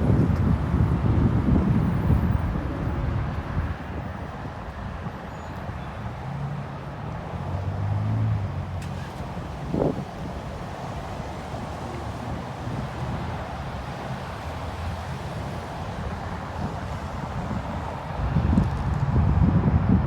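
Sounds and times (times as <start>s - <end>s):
wind buffeting microphone: 0.0s - 5.2s, 9.2s - 14.2s, 15.9s - 20.0s
traffic rumble: 0.0s - 20.0s
vehicle engine hum passing: 5.6s - 19.9s.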